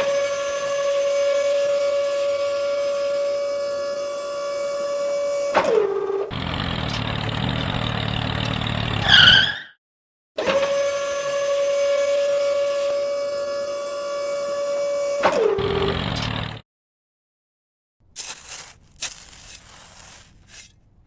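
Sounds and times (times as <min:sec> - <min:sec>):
small motor whine: 0:00.0 - 0:09.1, 0:10.4 - 0:16.6.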